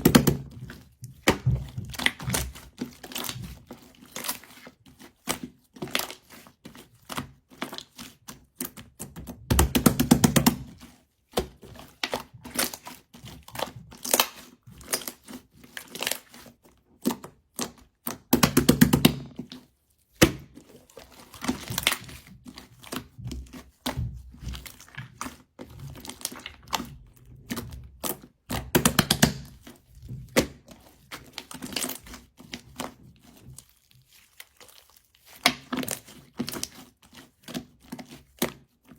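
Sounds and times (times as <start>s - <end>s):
rapid crackling of slime: 0.0s - 38.9s
slime squished by hand: 0.0s - 38.9s.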